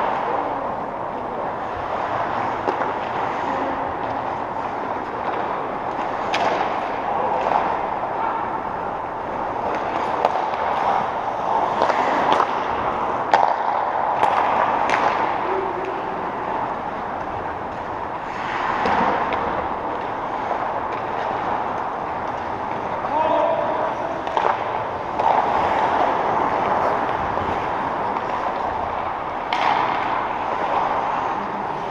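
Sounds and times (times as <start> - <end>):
sharp cracks of sticks striking: 13.3 - 15.4.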